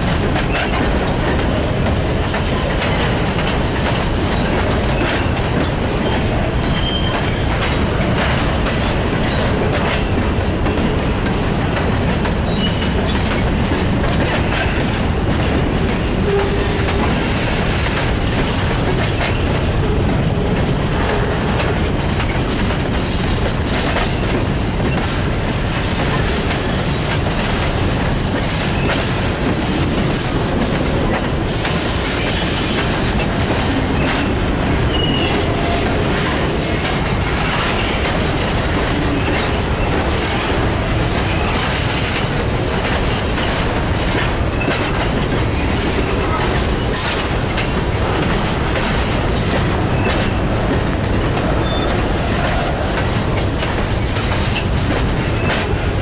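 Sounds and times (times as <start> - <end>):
freight train wheels rumbling: 0.0 - 56.0
wheels clicking over rail joints: 0.0 - 56.0
wheel squeals: 0.5 - 2.0, 6.0 - 7.5, 12.5 - 13.4, 34.0 - 35.9, 51.6 - 52.2.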